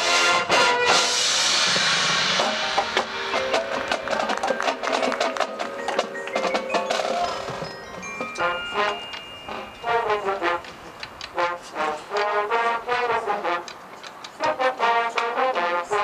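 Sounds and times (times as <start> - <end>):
drum hits: 1.4 - 9.0
woodblock-like taps: 2.4 - 8.5
mallet percussion notes: 2.4 - 11.2.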